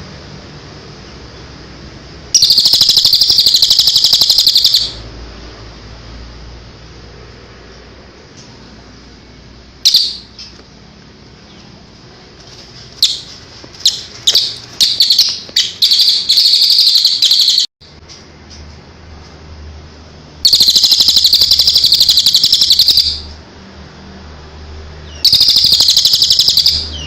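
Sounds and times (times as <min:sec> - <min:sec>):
songbird chirping and trilling: 0:02.4 - 0:05.0, 0:09.8 - 0:10.6, 0:13.0 - 0:17.7, 0:20.5 - 0:23.3, 0:25.0 - 0:27.0.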